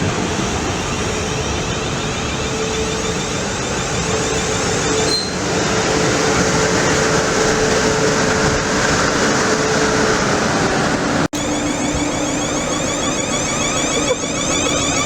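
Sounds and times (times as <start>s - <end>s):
train wheels on track rushing: 0.0s - 15.0s
droning tone: 11.4s - 15.0s.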